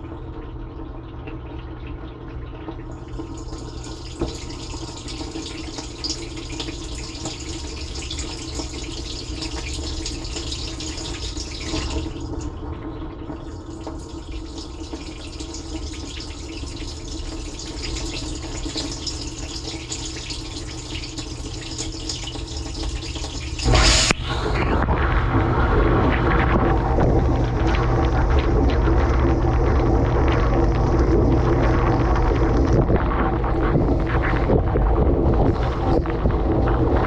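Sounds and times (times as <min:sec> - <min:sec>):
dishwasher pump motor hum: 0:00.0 - 0:37.0
water spraying in dishwasher: 0:03.2 - 0:12.5, 0:13.4 - 0:37.0.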